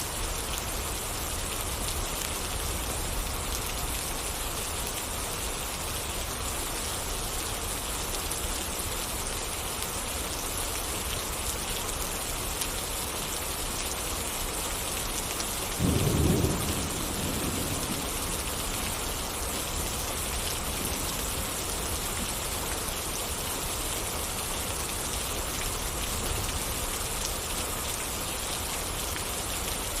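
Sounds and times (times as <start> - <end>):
rain falling: 0.0 - 30.0
low thunder rumble: 15.8 - 19.0.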